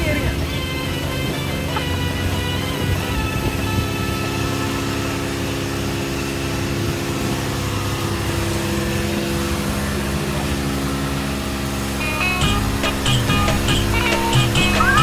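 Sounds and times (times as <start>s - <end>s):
boat engine running: 0.0s - 15.0s
music with a beat: 12.4s - 15.0s.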